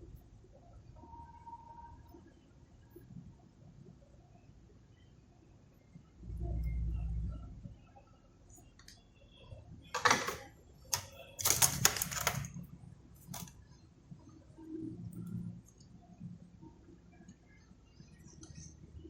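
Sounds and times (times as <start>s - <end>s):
small tools clicking and rattling: 10.0s - 12.5s.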